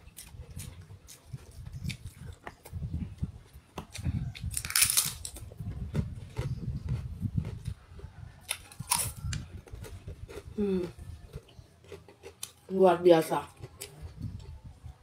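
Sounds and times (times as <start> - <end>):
person chewing with lip smacks: 5.4 - 12.6
person humming: 10.6 - 11.1.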